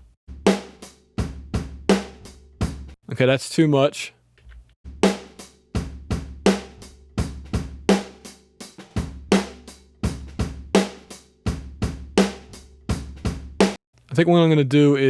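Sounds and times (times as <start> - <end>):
cymbals and hi-hat: 0.0 - 3.0, 4.9 - 13.8
snare drum: 0.3 - 3.0, 4.9 - 13.8
kick drum: 1.2 - 1.9, 2.6 - 3.0, 5.8 - 6.4.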